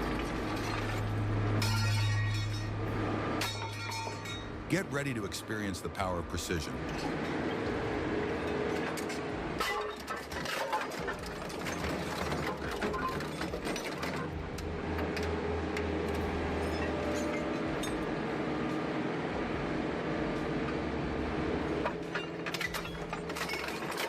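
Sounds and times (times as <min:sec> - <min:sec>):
metallic clanks and crunches: 0:00.0 - 0:04.6, 0:08.4 - 0:15.3, 0:21.8 - 0:24.0
shredding machinery rumbling: 0:00.0 - 0:24.0.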